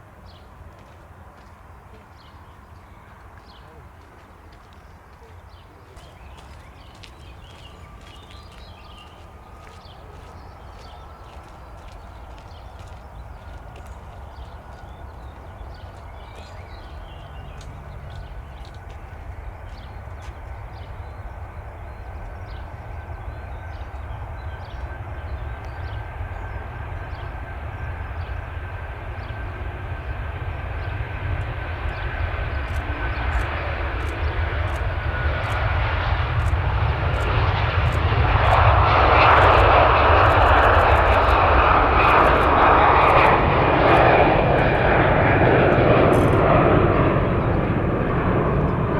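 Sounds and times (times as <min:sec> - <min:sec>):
jet airliner engines: 0:00.0 - 0:48.9
high engine whine: 0:05.9 - 0:48.9.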